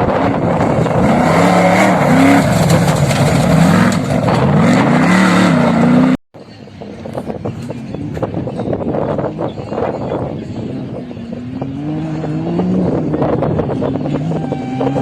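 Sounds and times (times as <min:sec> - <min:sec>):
wind on microphone: 0:00.0 - 0:01.4, 0:06.5 - 0:15.0
off-road vehicle engine revving: 0:00.0 - 0:06.2, 0:10.2 - 0:15.0.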